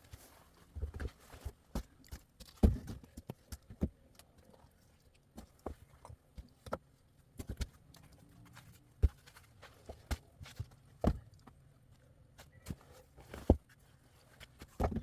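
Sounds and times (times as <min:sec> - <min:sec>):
knocks of objects handled: 0:00.7 - 0:04.0, 0:14.4 - 0:15.0.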